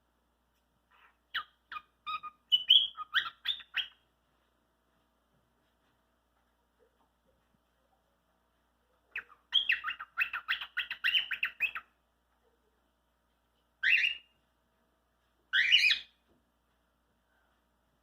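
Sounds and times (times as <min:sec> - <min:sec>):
cockatiel chattering: 0:00.9 - 0:04.0, 0:09.1 - 0:11.9.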